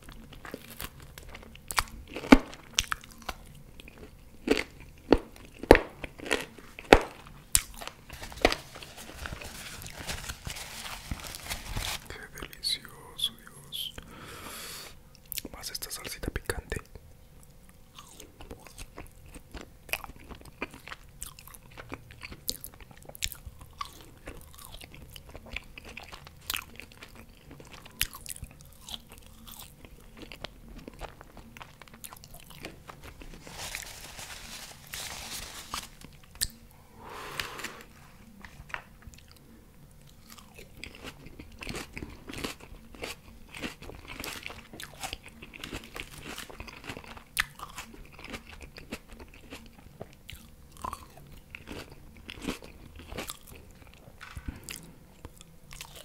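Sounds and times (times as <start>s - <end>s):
chewing fries: 0.0s - 13.5s, 15.1s - 36.7s, 37.4s - 56.0s
breathy hiss: 12.0s - 15.0s, 36.7s - 38.1s.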